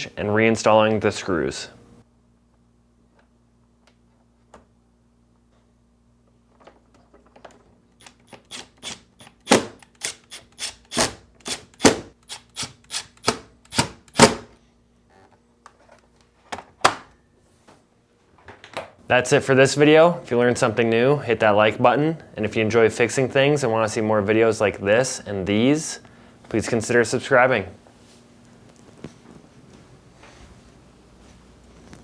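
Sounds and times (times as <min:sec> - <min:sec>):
screwdriver clicking: 0:08.0 - 0:14.4
faint steady hum: 0:17.3 - 0:32.0.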